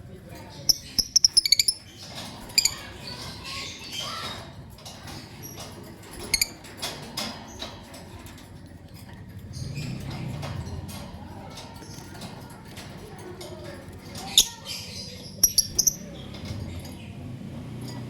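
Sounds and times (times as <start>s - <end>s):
lovebirds chirping: 0.4s - 4.3s, 14.2s - 17.4s.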